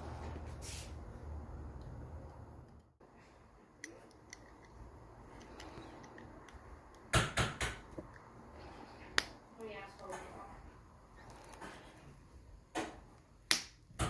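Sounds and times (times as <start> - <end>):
wristwatch and small tools clicking: 3.8 - 7.1.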